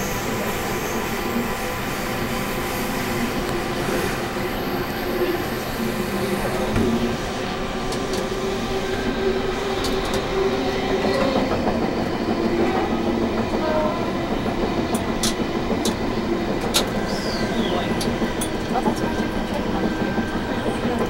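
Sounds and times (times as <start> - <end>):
train rumble inside carriage: 0.0 - 21.0
sharp clicks from the track: 14.8 - 16.0.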